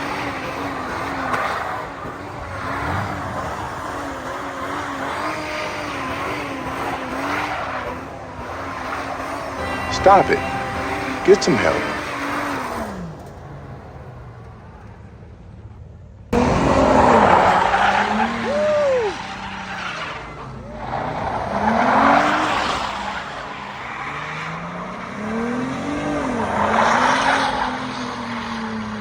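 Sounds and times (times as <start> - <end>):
car engine revving: 0.0 - 29.0
tyres screeching: 16.4 - 23.6.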